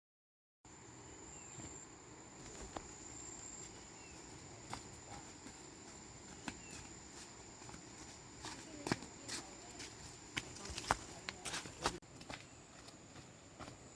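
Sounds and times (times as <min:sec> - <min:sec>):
insects trilling: 0:00.7 - 0:11.4.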